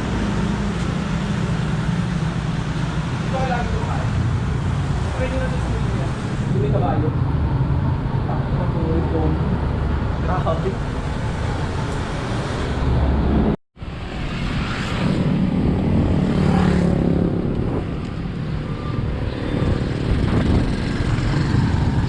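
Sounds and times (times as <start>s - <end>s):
road and vehicle noise: 0.0s - 22.0s.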